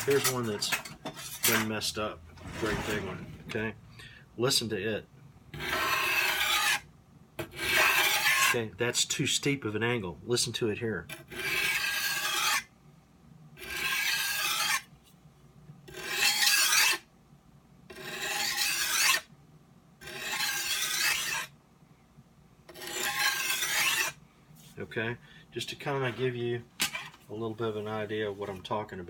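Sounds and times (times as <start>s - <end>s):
knife scraping on sharpening stone: 1.1s - 1.7s, 5.6s - 6.8s, 7.6s - 8.6s, 11.1s - 12.7s, 13.6s - 14.8s, 15.9s - 17.0s, 17.9s - 19.2s, 20.0s - 21.5s, 22.7s - 24.2s.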